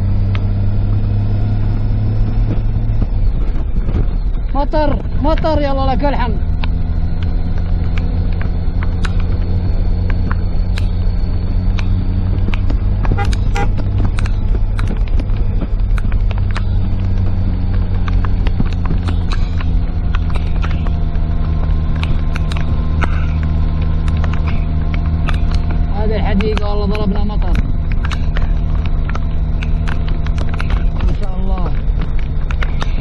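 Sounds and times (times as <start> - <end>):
car engine and road hum: 0.0 - 33.0
raindrops ticking on car roof: 11.8 - 33.0.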